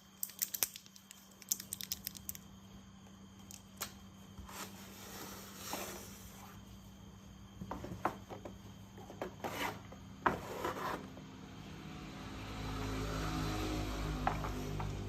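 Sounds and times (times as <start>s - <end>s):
plastic toy parts clicking: 0.2s - 2.4s.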